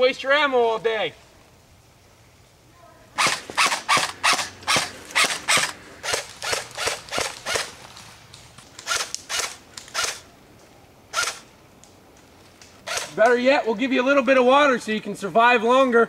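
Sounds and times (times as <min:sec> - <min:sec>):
airsoft gun shots: 0:03.2 - 0:07.7, 0:12.8 - 0:13.2.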